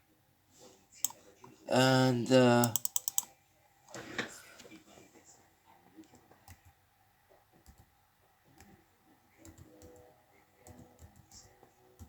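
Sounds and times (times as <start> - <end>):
faint computer clicks: 2.6 - 3.3.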